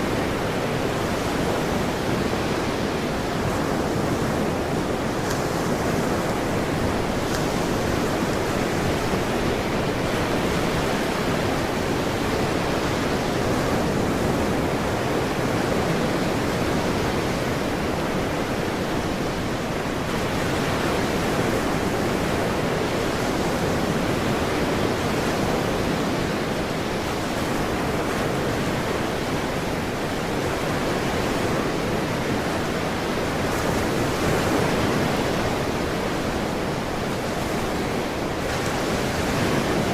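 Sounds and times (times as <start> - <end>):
ocean waves: 0.0 - 39.9.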